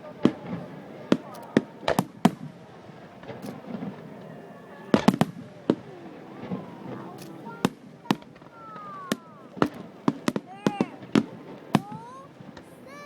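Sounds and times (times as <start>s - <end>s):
crowd chatter: 0.0s - 13.0s
fireworks bangs: 0.0s - 13.0s.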